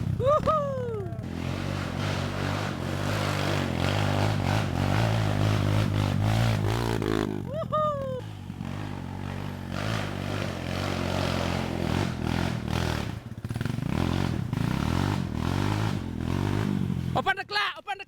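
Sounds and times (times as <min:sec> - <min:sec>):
dirt bike engine running: 0:00.0 - 0:17.2
person calling out: 0:00.2 - 0:01.2, 0:07.4 - 0:08.2, 0:17.2 - 0:18.0.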